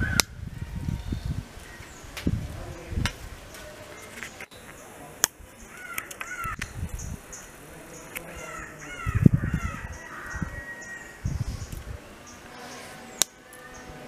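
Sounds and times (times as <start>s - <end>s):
bird cawing: 0.0s - 0.4s, 5.7s - 6.7s, 8.3s - 11.2s.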